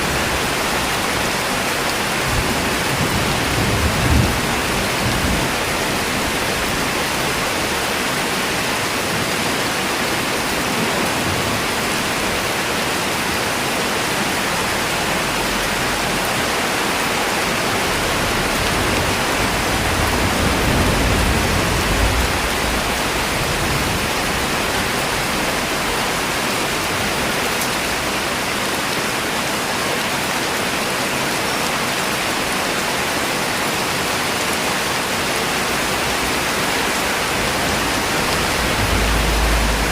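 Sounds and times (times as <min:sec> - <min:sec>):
steady rain hiss: 0:00.0 - 0:39.9
low rumble: 0:37.2 - 0:39.9.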